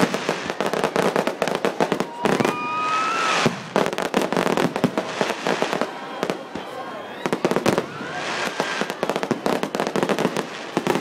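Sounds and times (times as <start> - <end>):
fireworks crackling bangs: 0.0 - 11.0
firework rising whistle: 1.8 - 3.7, 4.7 - 10.4.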